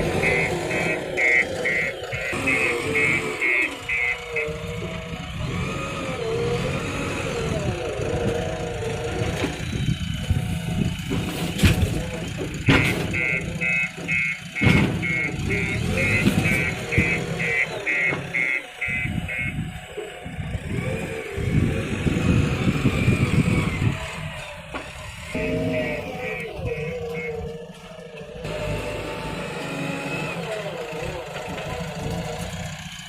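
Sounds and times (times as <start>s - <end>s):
diesel engine working: 0.0s - 33.0s
high beeping: 0.1s - 4.8s, 12.7s - 19.7s, 25.3s - 27.5s.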